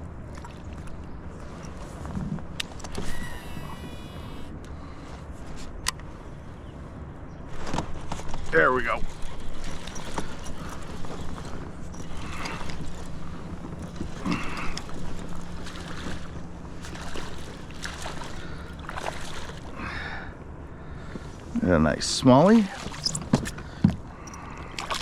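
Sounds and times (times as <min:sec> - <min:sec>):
water against a kayak: 0:00.0 - 0:25.0.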